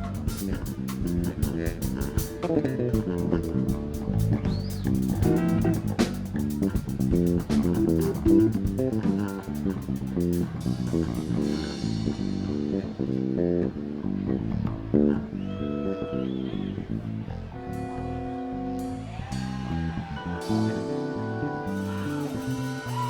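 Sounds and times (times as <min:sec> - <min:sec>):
drum cymbals: 0:00.0 - 0:12.7, 0:21.7 - 0:23.0
bass guitar: 0:00.0 - 0:23.0
electric guitar: 0:00.0 - 0:23.0.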